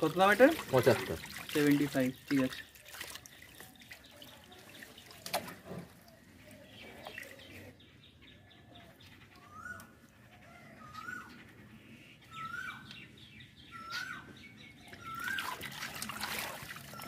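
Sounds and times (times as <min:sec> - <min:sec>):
water splashing in fish tank: 0:00.0 - 0:06.2, 0:15.0 - 0:17.0
bird calling: 0:08.4 - 0:15.9.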